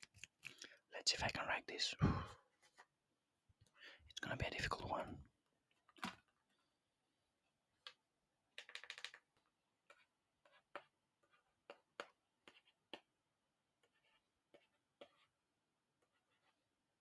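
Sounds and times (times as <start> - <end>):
pen writing on paper: 9.8 - 16.8.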